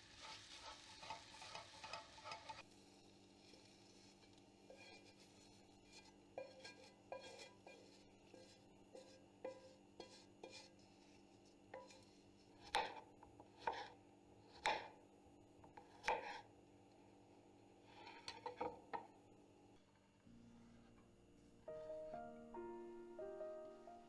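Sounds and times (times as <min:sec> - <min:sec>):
kitchen utensils knocking and clinking: 0:00.6 - 0:02.6
faint steady hum: 0:02.6 - 0:24.0.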